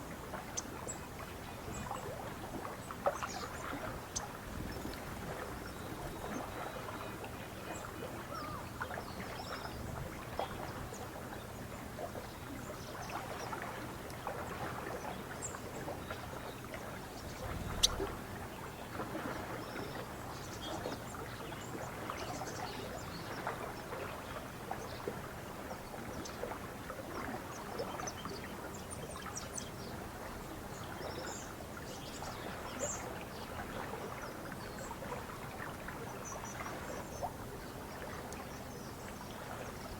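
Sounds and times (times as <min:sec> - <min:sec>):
water lapping against shore: 0:00.0 - 0:39.9
faint bird chirps: 0:15.4 - 0:19.0.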